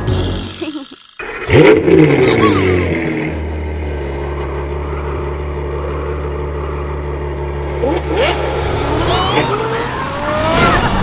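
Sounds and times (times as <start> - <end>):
cartoon engine idling hum: 0.0 - 9.6
squeaky pitch glides: 6.3 - 11.0.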